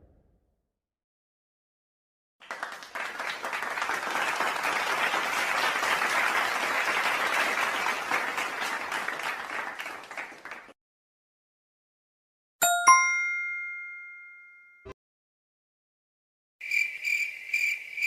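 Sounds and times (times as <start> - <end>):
crowd clapping: 2.4 - 10.8.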